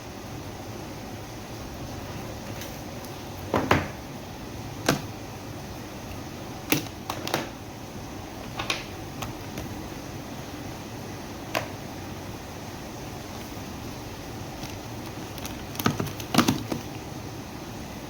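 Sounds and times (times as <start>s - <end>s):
steady background noise: 0.0s - 18.0s
packaging clicks and knocks: 14.6s - 17.0s.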